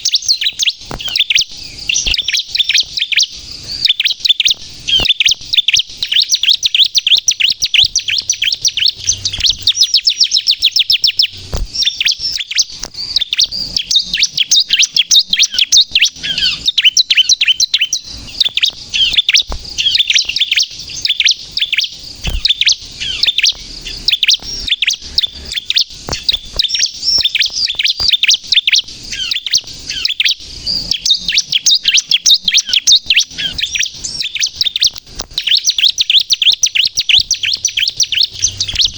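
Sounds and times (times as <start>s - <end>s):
bird chirping rapidly: 0.0s - 38.9s.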